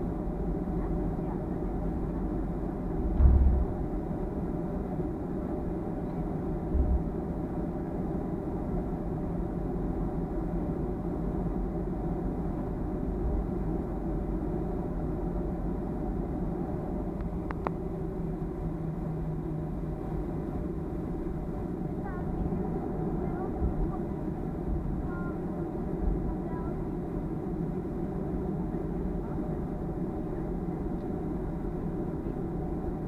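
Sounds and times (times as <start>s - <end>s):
airplane cabin engine rumble: 0.0s - 33.0s
low thump: 3.1s - 3.8s, 6.7s - 7.0s.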